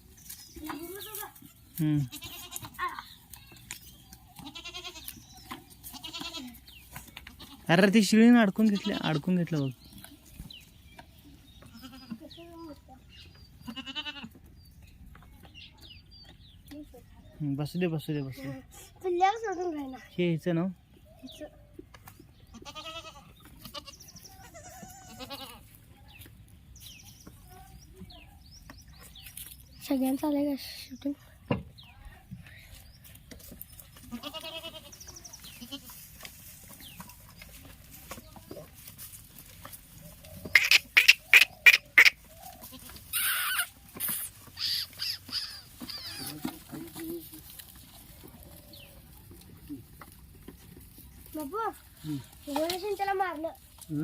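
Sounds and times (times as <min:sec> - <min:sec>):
goats bleating: 0:01.8 - 0:03.0, 0:04.4 - 0:05.2, 0:05.8 - 0:06.6, 0:07.3 - 0:07.7, 0:08.6 - 0:09.4, 0:13.6 - 0:14.4, 0:22.6 - 0:25.6, 0:34.0 - 0:36.0
farmyard fowl calling: 0:39.9 - 0:50.1.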